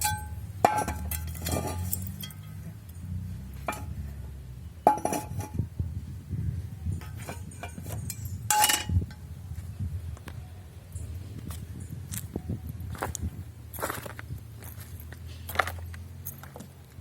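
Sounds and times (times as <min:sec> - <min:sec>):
scrap metal clinking together: 0:00.0 - 0:02.6.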